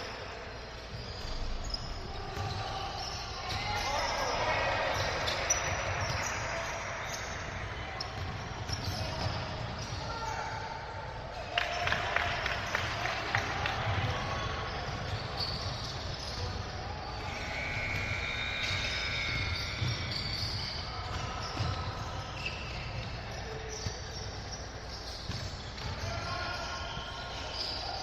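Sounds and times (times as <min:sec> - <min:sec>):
voices in a gym: 0:00.0 - 0:28.0
basketball bouncing on gym floor: 0:08.0 - 0:10.0, 0:25.0 - 0:26.2.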